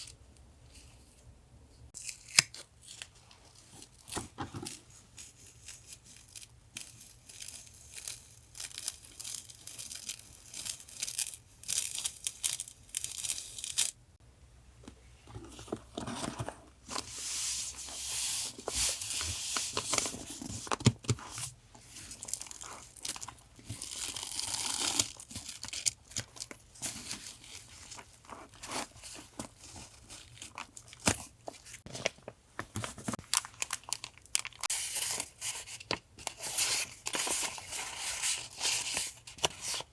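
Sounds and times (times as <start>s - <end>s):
packaging tearing and crinkling: 5.4s - 14.0s, 21.8s - 32.1s, 32.8s - 39.8s.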